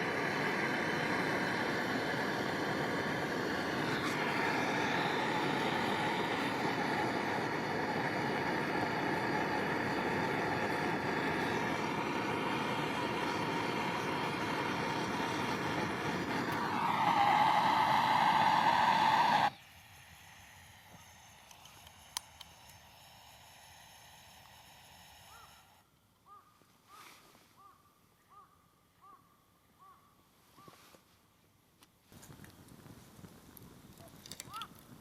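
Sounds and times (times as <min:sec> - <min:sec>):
passing engine droning: 0:00.0 - 0:19.6
short bird calls: 0:25.3 - 0:30.8.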